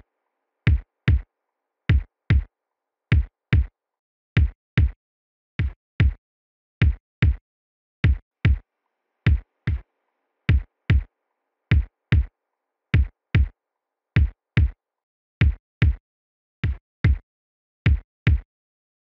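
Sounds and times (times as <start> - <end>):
heartbeat thumps: 10.5 - 11.0.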